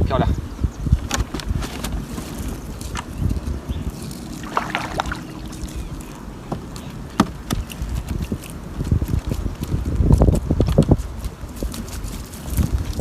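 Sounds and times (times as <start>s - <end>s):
constant low rumble: 0.0s - 13.0s
water sloshing around boat: 3.9s - 7.0s.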